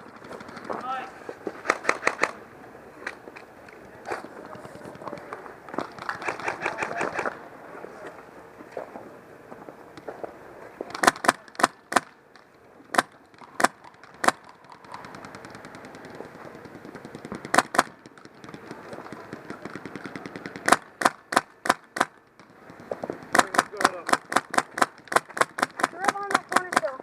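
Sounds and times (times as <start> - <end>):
fast stream of shots: 0.1 - 2.4, 5.8 - 7.4, 10.9 - 12.2, 12.9 - 27.0
airsoft gun single shots: 10.9 - 12.1, 20.1 - 22.1.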